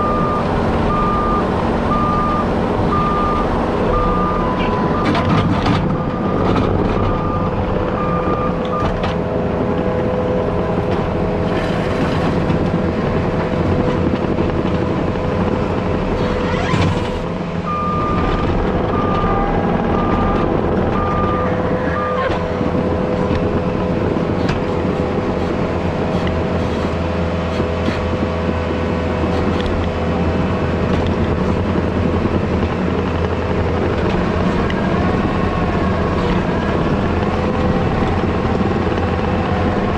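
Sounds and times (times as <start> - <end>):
backup alarm beeping: 0.0 - 5.2, 5.9 - 9.0, 17.7 - 22.2
heavy machine engine running: 0.0 - 39.9.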